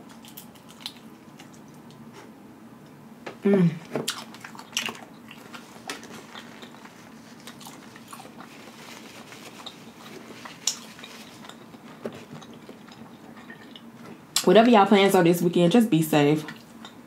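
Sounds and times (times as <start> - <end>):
person chewing: 0.0 - 2.3, 4.0 - 14.1.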